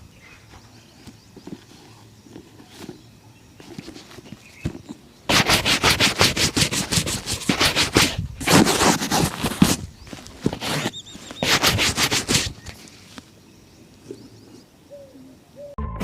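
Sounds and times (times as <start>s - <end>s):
shoe buffing strokes: 3.6s - 12.9s.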